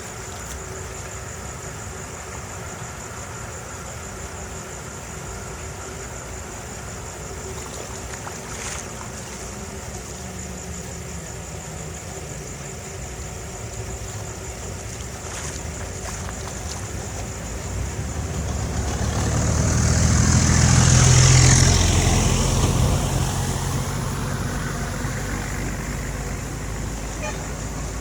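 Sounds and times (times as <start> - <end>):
vehicle passing by: 16.0 - 28.0.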